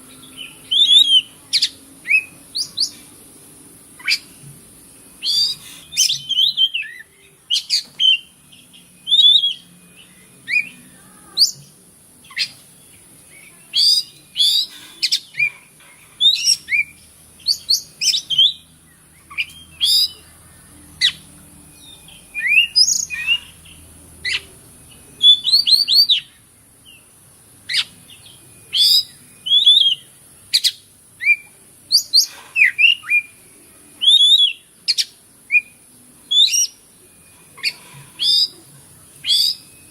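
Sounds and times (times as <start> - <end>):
steady high hiss: 0.0 - 39.9
bird whistling and chirping: 0.4 - 3.0, 5.2 - 10.8, 13.4 - 15.6, 16.2 - 20.3, 21.0 - 24.5, 25.1 - 27.0, 27.7 - 33.4, 34.0 - 39.9.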